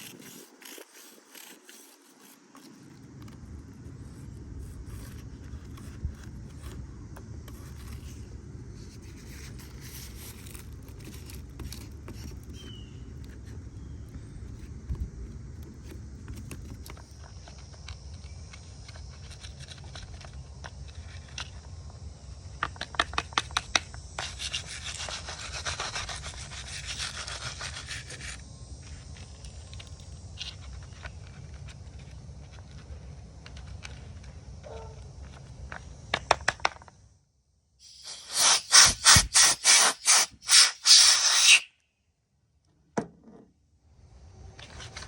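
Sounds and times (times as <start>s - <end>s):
rubbing and scraping: 0.0s - 3.4s, 37.8s - 41.7s
scrubbing hiss: 37.8s - 41.7s.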